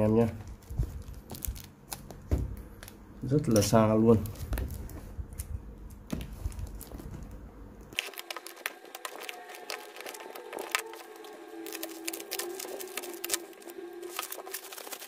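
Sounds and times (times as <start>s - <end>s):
packaging clicks and crinkles: 0.4s - 2.2s, 7.9s - 15.0s
faint sustained tones: 8.0s - 15.0s.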